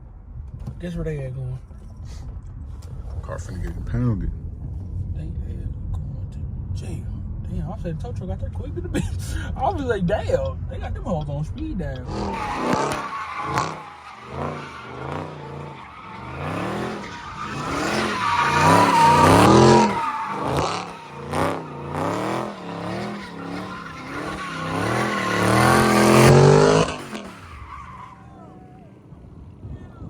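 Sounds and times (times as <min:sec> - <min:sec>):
car engine revving hard: 0:12.1 - 0:28.2
tyres squealing: 0:12.1 - 0:28.9.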